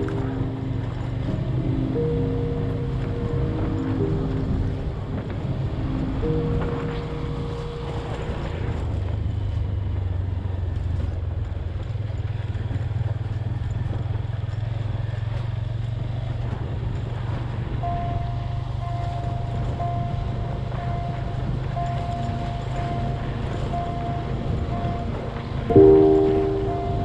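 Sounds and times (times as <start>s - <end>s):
faint high tone: 0.0s - 9.0s, 25.7s - 27.0s
road and wind noise: 0.0s - 25.8s.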